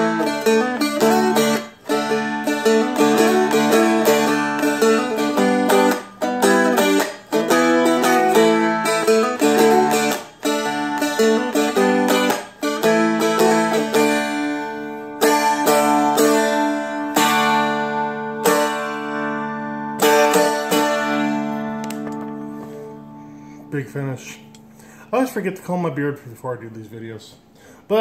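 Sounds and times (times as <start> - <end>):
guitar picked melody with strums: 0.0 - 25.0.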